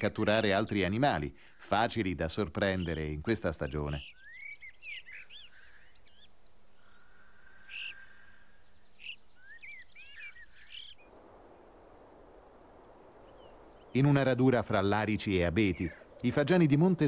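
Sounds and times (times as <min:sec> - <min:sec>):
birds chirping: 0:00.0 - 0:12.0, 0:12.7 - 0:17.0
outdoor ambience hiss: 0:00.0 - 0:17.0.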